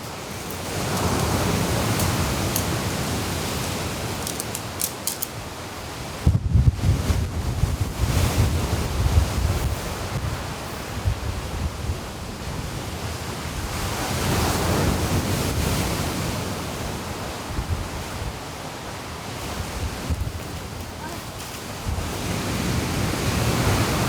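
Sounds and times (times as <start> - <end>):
sea waves washing ashore: 0.0 - 24.0
wind buffeting microphone: 5.4 - 24.0.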